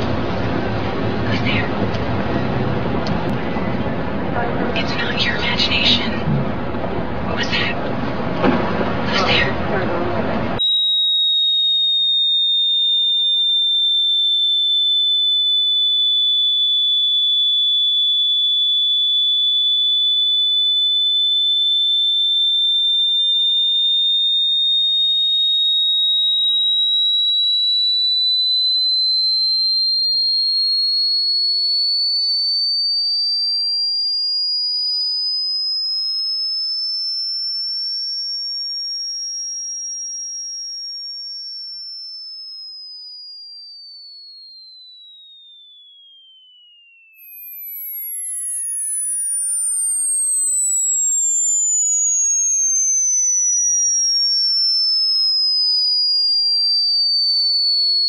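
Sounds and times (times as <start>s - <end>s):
high-pitched electronic tone: 0.0s - 7.8s, 25.0s - 58.0s.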